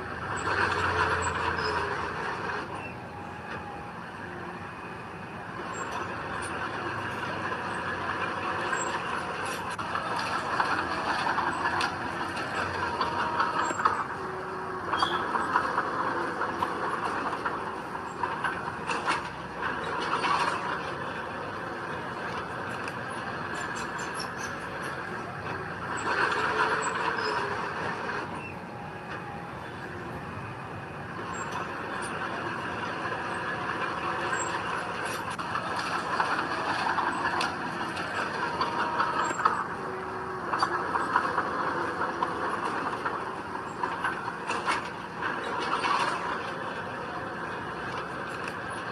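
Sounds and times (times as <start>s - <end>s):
diesel earthmoving machinery: 0.0s - 48.9s
short high squeals: 0.2s - 5.1s, 5.7s - 21.2s.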